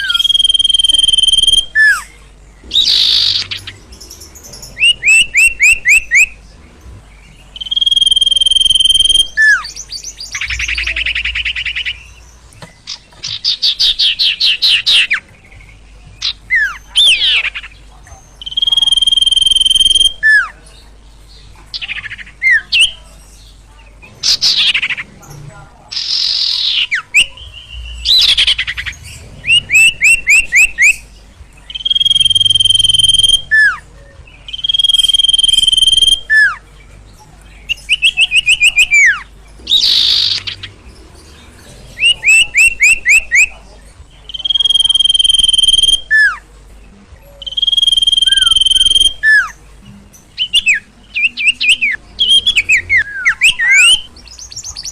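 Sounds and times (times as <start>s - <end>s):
songbird whistling song: 0.0s - 25.1s, 25.9s - 54.9s
harsh rasping bird calls: 0.0s - 54.9s.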